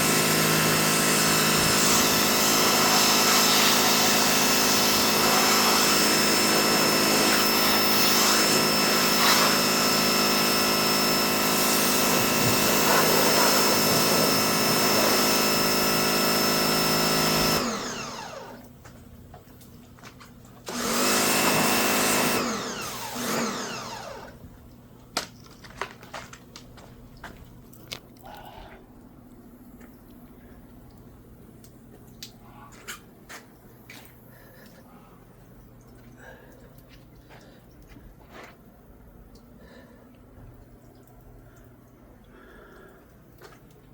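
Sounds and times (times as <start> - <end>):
pressure washer motor and pump: 0.0 - 24.7.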